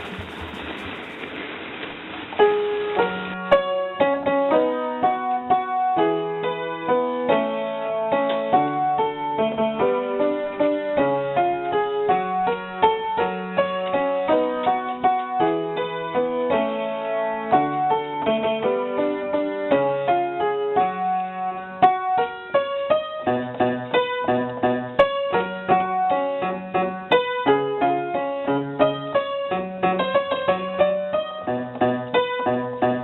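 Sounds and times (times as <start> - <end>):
piano music with chords and bass: 0.0 - 1.4, 2.2 - 33.0
steady hiss: 0.0 - 11.4.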